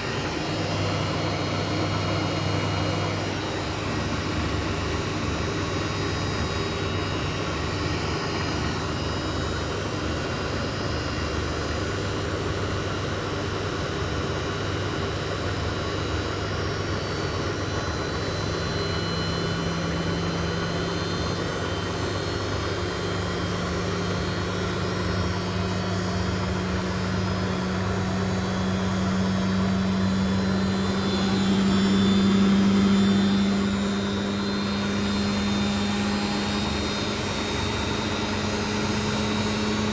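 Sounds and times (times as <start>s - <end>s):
rising motor whine: 0.0s - 12.2s, 15.8s - 39.9s
washing machine spinning: 0.0s - 39.9s.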